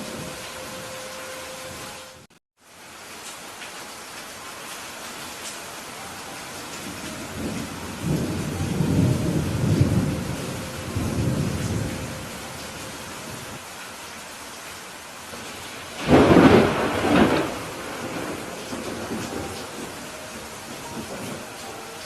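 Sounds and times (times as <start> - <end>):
steady rain: 0.0 - 22.0
rolling thunder rumble: 6.8 - 13.6, 15.3 - 21.6
loud thunderclap: 16.0 - 20.1.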